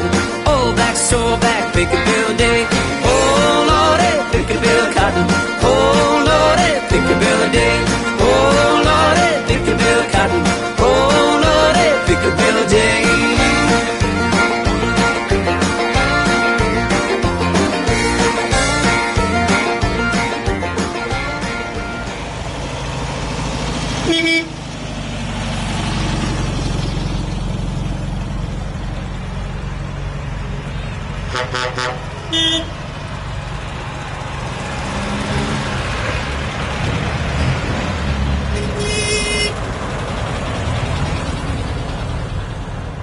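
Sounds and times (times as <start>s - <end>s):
tractor engines rumbling: 0.0s - 43.0s
short horn toots: 24.0s - 24.6s, 31.3s - 32.8s, 38.5s - 39.6s.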